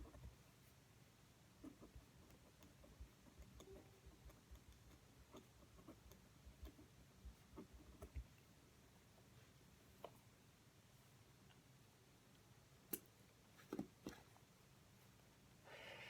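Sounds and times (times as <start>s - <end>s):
pen writing on paper: 1.6s - 8.2s.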